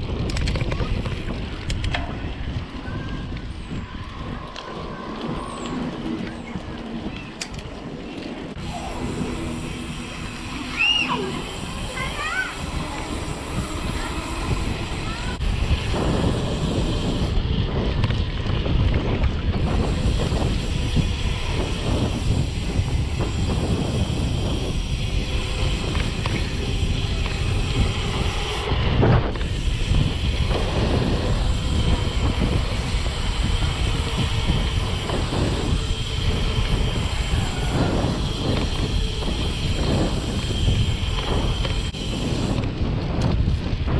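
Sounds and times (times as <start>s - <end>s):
bike rattling and knocking: 0.0s - 43.9s
wind buffeting microphone: 0.0s - 43.9s.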